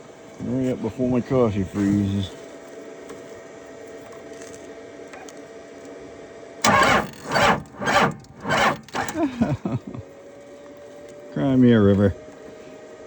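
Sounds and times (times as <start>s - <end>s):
diesel engine cranking: 6.6s - 9.5s.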